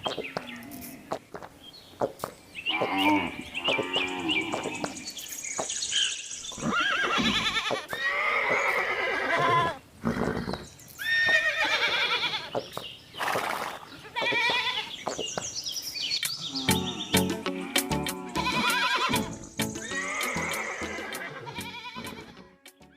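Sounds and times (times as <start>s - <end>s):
horses neighing: 2.6s - 5.2s, 6.5s - 15.0s, 16.4s - 22.4s.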